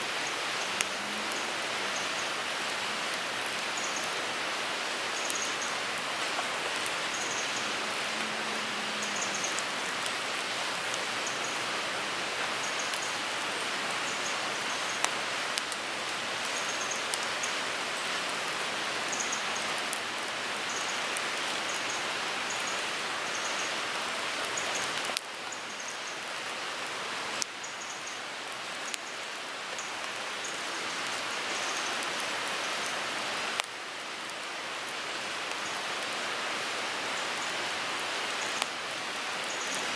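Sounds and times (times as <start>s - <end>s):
wood fire hissing: 0.0s - 25.3s
fire crackles and pops: 0.2s - 4.3s, 12.3s - 20.4s.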